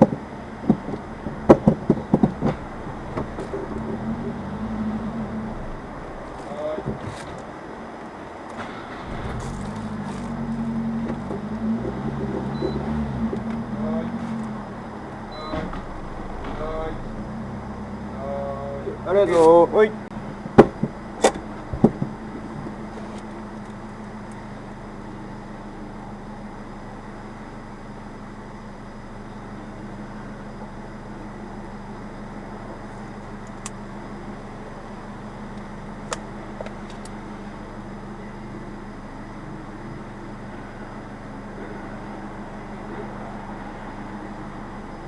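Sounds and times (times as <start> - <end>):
sharp knocks: 0.0 - 4.5, 20.5 - 22.2
car engine running: 0.0 - 45.0.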